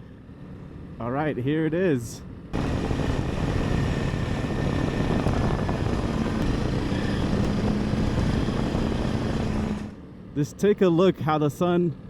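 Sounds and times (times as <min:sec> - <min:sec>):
wind noise on microphone: 0:02.6 - 0:10.0
motorcycle engine running: 0:04.3 - 0:10.0.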